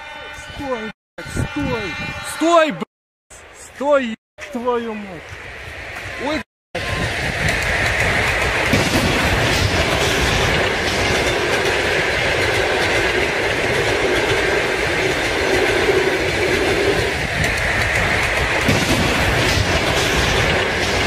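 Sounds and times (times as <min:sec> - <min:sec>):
train wheels on track: 0:04.4 - 0:21.0.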